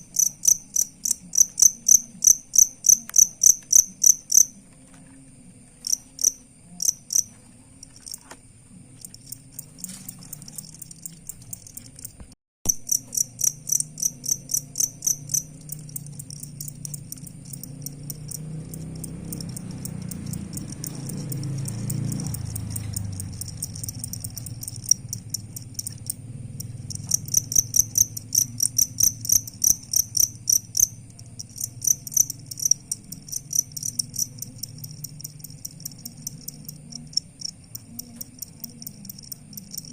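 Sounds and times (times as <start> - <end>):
crickets chirping: 0.0 - 39.9
steady high trill: 12.7 - 37.6.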